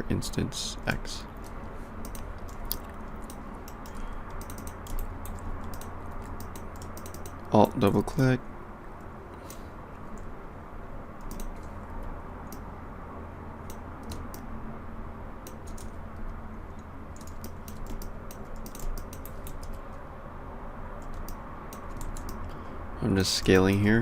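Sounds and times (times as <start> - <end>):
steady low hum: 0.0 - 24.0
computer keyboard keystrokes: 1.4 - 7.6, 11.2 - 12.6, 13.7 - 14.5, 15.4 - 16.4, 17.1 - 19.9, 21.0 - 22.5.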